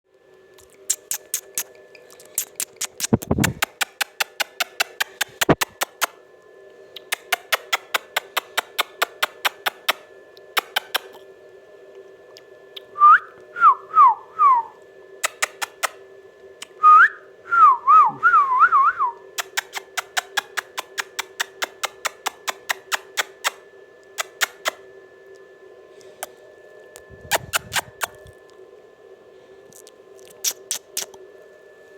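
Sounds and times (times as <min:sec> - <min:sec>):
faint steady hum: 0:00.1 - 0:31.9
rapid sharp clicks: 0:02.4 - 0:06.1, 0:07.0 - 0:10.0
parrot whistling: 0:27.2 - 0:28.3.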